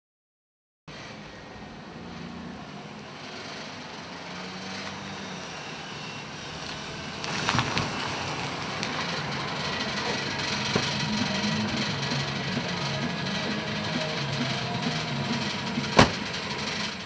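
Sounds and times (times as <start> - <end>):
pickup truck engine running: 0.9 - 17.0
tyres rolling: 1.8 - 17.0
crackling: 4.4 - 17.0.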